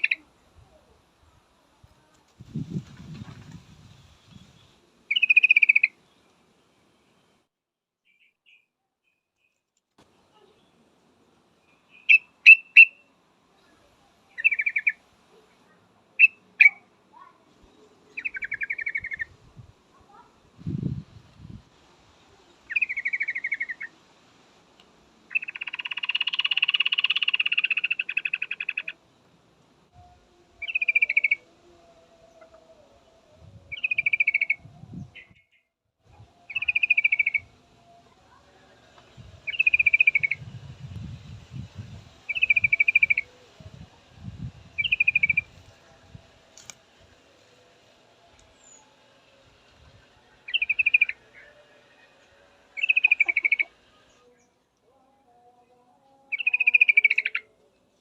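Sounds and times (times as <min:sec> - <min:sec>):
bulbul chattering calls: 0:00.0 - 0:00.2, 0:05.1 - 0:06.0, 0:11.8 - 0:13.0, 0:14.4 - 0:15.0, 0:18.1 - 0:19.3, 0:22.7 - 0:23.9, 0:25.3 - 0:29.0, 0:30.6 - 0:31.4, 0:33.7 - 0:34.6, 0:36.5 - 0:37.5, 0:39.5 - 0:40.4, 0:42.3 - 0:43.4, 0:44.8 - 0:45.6, 0:50.4 - 0:51.6, 0:52.8 - 0:53.8, 0:56.3 - 0:57.5.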